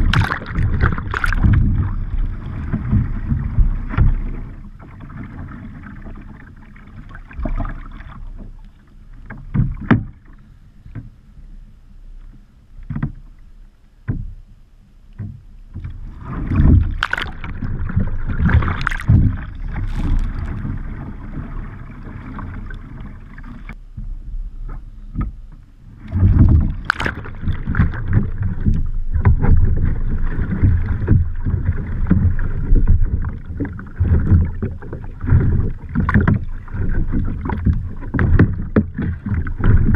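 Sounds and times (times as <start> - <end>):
paddle knocks: 0.0 - 6.2, 9.2 - 10.3, 12.8 - 13.3, 14.0 - 14.4, 15.2 - 21.5, 26.0 - 39.9
water splashing around kayak: 0.0 - 39.9.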